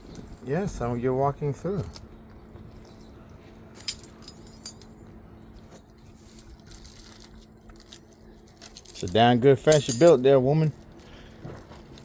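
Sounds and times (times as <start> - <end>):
faint steady hum: 0.0 - 12.0
metallic clinks and jingles: 3.8 - 5.0, 7.9 - 12.0.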